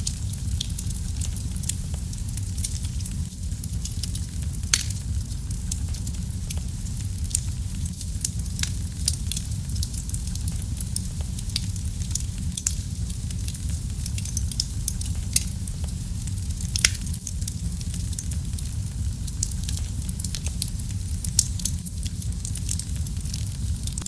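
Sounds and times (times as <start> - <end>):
wood fire crackling and popping: 0.0 - 24.0.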